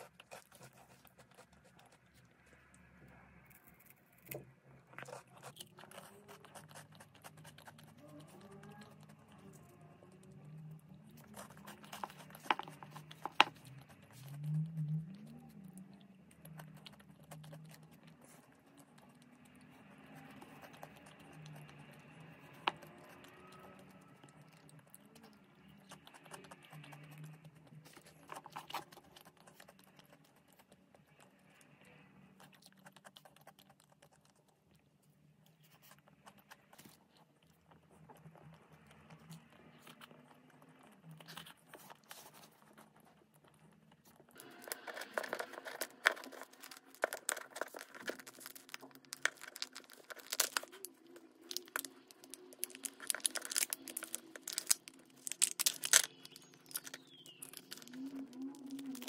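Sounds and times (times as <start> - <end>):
chewing chocolate crunches: 0.0 - 59.0
wrapper crinkling: 44.4 - 59.0.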